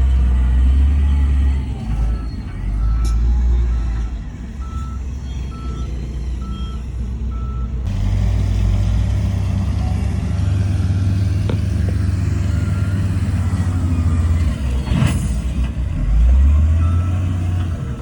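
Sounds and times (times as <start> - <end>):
diesel engine running: 0.0 - 18.0
reversing alarm beeping: 1.0 - 7.8, 12.4 - 14.6.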